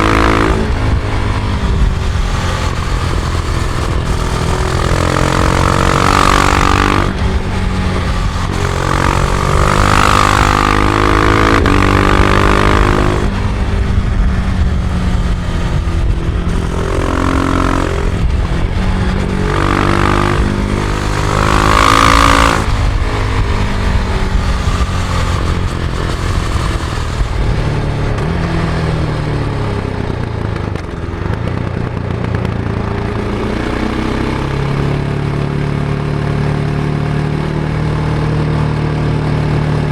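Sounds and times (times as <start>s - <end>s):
wind rush: 0.0s - 31.6s
motorcycle engine accelerating: 0.0s - 39.9s.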